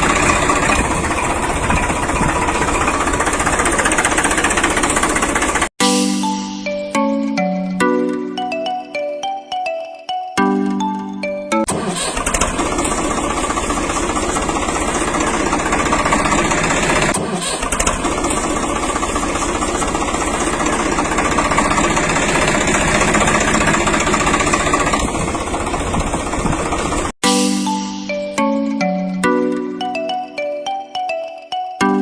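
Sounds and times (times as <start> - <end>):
small tractor motor running: 0.0 - 5.7, 11.6 - 27.1.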